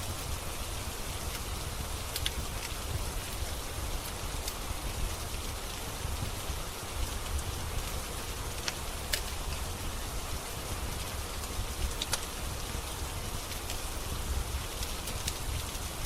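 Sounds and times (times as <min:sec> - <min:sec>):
steady rain hissing: 0:00.0 - 0:16.0
wood fire popping: 0:01.1 - 0:05.5, 0:07.0 - 0:10.2, 0:10.8 - 0:16.0.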